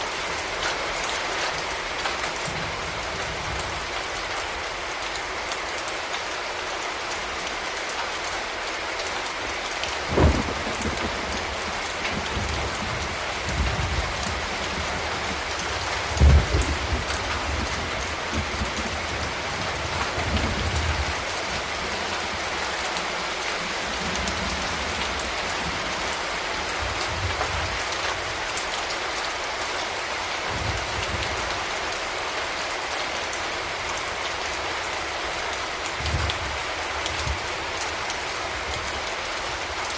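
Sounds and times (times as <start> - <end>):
rain falling on city surfaces: 0.0 - 39.9.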